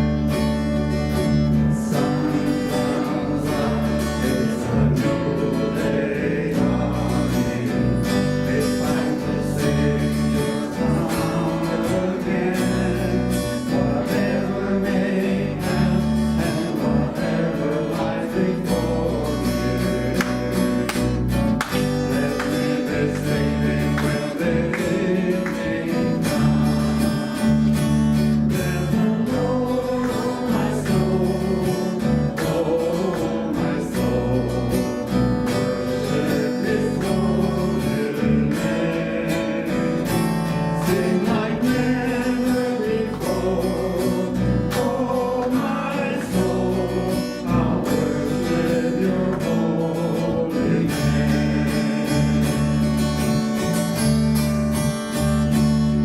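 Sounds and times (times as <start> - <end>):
band playing worship song: 0.0 - 56.0
bass: 0.0 - 56.0
strummed acoustic guitar: 0.0 - 56.0
person singing: 28.4 - 52.9.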